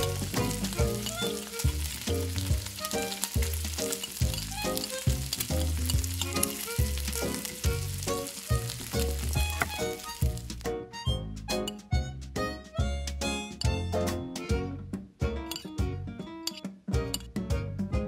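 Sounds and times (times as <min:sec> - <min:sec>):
spoon stirring: 0:00.0 - 0:10.2
filling sizzling in a metal pan: 0:00.0 - 0:10.6.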